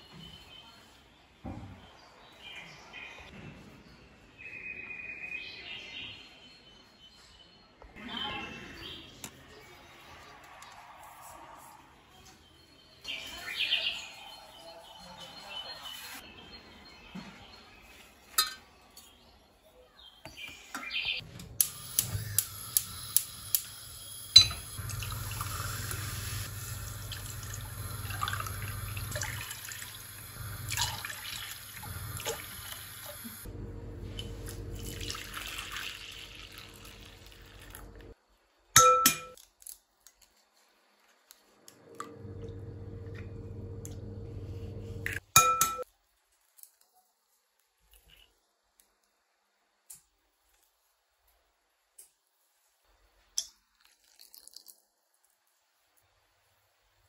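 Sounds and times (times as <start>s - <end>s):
glassware and dishes clinking: 18.3s - 18.7s, 24.4s - 24.7s, 38.8s - 39.4s, 45.4s - 45.8s
water running at sink: 21.8s - 33.5s, 34.1s - 38.1s
steady motor hum: 42.0s - 45.2s.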